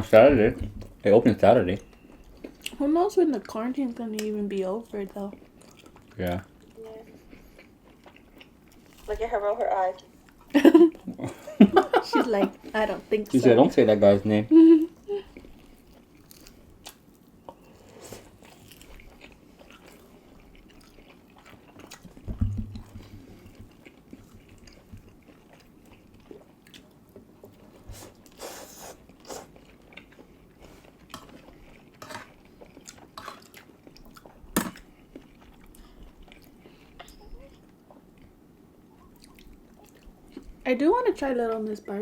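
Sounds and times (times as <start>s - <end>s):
people chewing food: 0.0s - 42.0s
loud dull thump: 22.3s - 23.1s.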